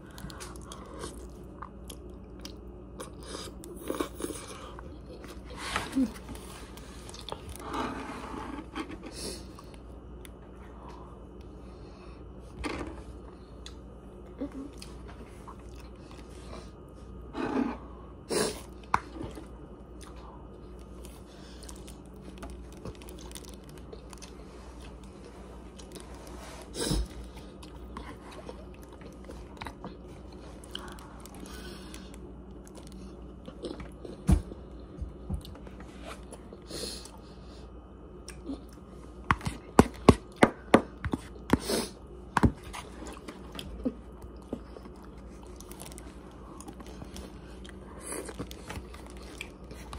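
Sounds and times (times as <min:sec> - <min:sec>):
close-up chewing: 0:00.0 - 0:07.8, 0:13.5 - 0:17.0, 0:18.6 - 0:37.2, 0:42.3 - 0:49.9.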